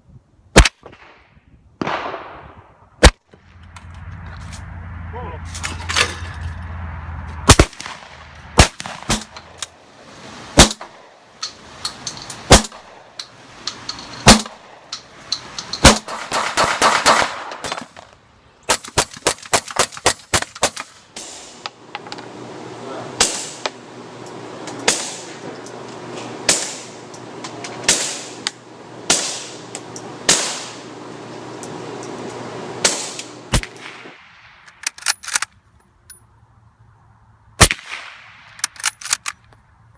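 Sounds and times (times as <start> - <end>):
suppressed gunshots: 1.8 - 3.6, 7.4 - 9.6, 10.5 - 11.1, 12.5 - 13.1, 14.2 - 14.9, 15.8 - 18.0, 23.2 - 23.8, 24.8 - 25.4, 26.5 - 27.0, 27.8 - 28.5, 29.1 - 29.7, 30.3 - 30.8, 32.8 - 34.8, 37.6 - 38.7.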